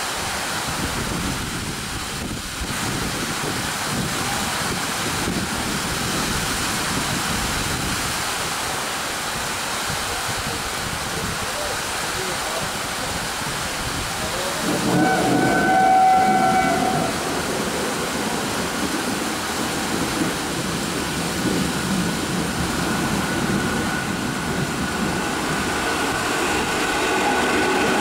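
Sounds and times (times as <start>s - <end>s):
train rumbling at speed: 0.0s - 28.0s
train horn: 14.6s - 17.4s, 26.6s - 28.0s.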